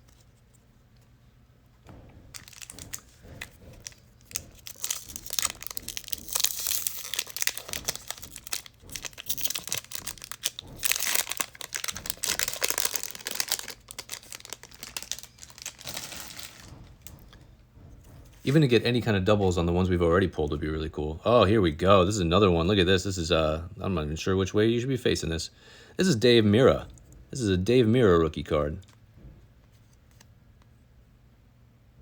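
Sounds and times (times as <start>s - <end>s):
wrapper tearing and crinkling: 2.3s - 3.2s, 3.8s - 16.7s.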